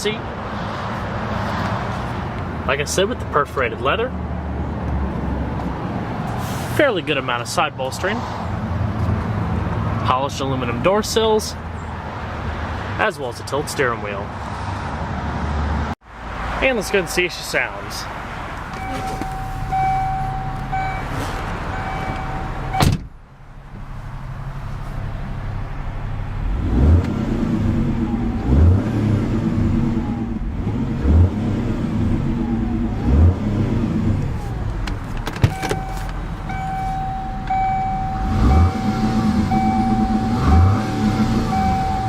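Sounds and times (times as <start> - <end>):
warning chime beeping: 16.6 - 22.9, 35.5 - 42.0
car engine revving: 25.2 - 42.0.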